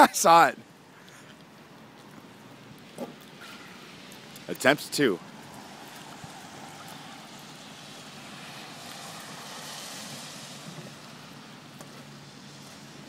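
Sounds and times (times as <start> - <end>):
rc car hissing on wet ground: 5.6 - 11.4.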